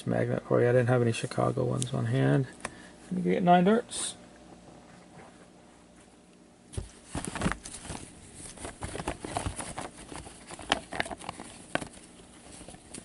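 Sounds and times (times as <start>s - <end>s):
handling clicks and rustles: 6.7s - 13.0s.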